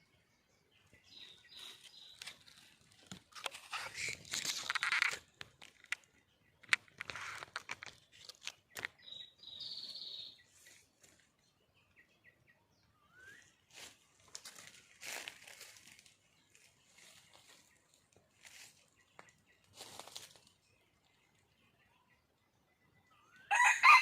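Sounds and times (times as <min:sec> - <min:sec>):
dry leaves rustling: 0:01.4 - 0:05.9, 0:13.7 - 0:17.8, 0:18.4 - 0:18.8, 0:19.7 - 0:20.6
high bird calls: 0:03.4 - 0:10.8.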